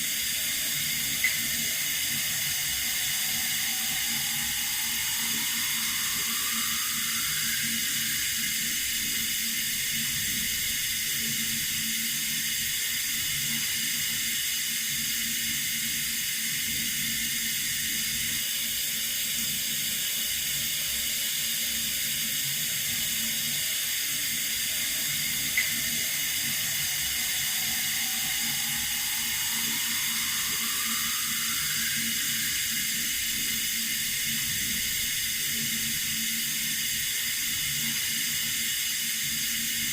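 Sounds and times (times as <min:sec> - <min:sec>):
running water hiss: 0:00.0 - 0:39.9
faint rising tone: 0:00.1 - 0:10.6, 0:23.6 - 0:35.0.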